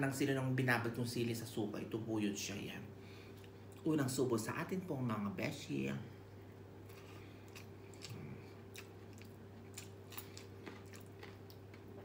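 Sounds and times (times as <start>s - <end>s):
steady low hum: 0.0s - 12.0s
chewing food: 6.9s - 12.0s.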